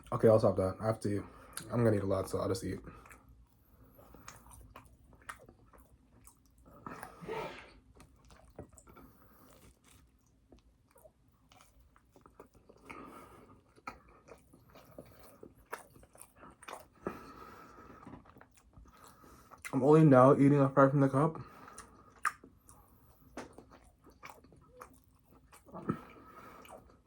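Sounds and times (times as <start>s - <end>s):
person chewing food: 1.3s - 19.8s, 21.4s - 27.0s
wet mouth clicks: 21.7s - 22.5s.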